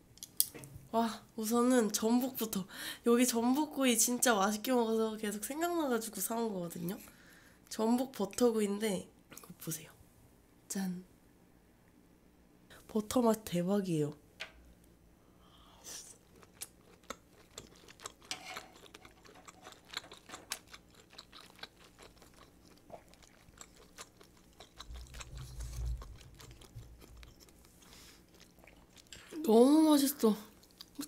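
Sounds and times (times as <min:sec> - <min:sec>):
wet chewing: 0:15.9 - 0:29.4, 0:30.5 - 0:31.0.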